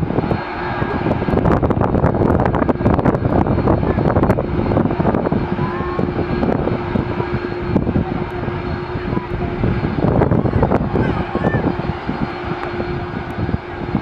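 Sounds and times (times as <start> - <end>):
aircraft engines rumbling: 0.0 - 14.0.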